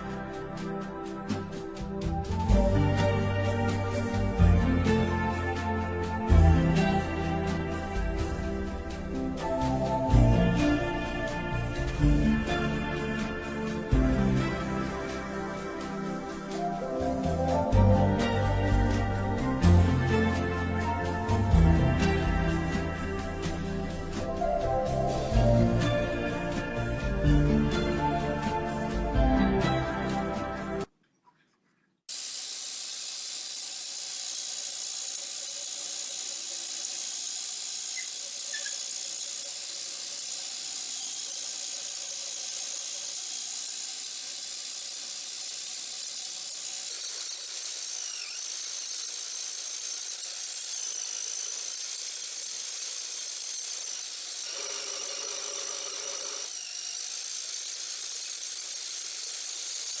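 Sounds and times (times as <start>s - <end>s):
small machine hissing: 0.0s - 29.0s, 32.1s - 60.0s
thin high whine: 34.5s - 48.4s.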